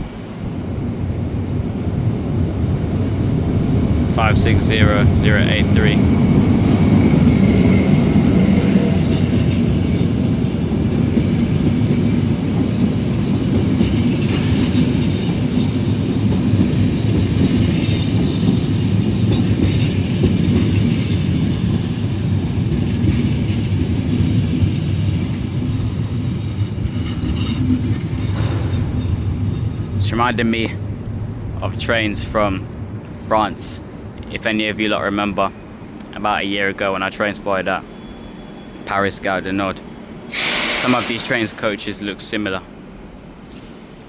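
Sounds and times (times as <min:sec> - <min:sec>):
train wheels rumbling on rails: 0:00.0 - 0:44.0
wheels clacking over rail joints: 0:02.8 - 0:31.6.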